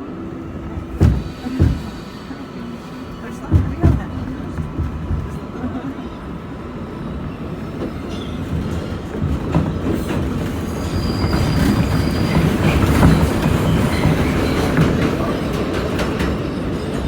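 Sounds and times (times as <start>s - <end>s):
subway train rumbling on track: 0.0s - 17.0s
wheels clicking over rail joints: 0.8s - 2.0s
high wheel squeal: 10.4s - 15.4s.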